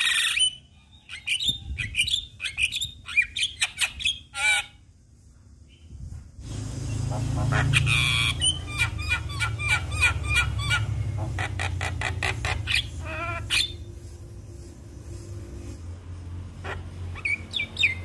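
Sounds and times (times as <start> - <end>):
steady low hum: 4.7 - 18.0.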